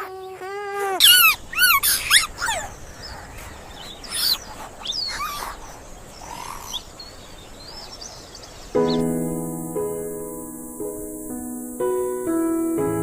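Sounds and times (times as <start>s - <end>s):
high-pitched animal yelps: 0.0s - 2.7s, 4.1s - 5.6s.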